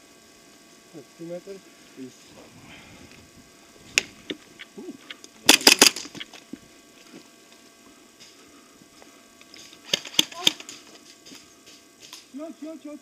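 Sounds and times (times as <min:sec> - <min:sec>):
airsoft gun shots: 0:05.5 - 0:06.2.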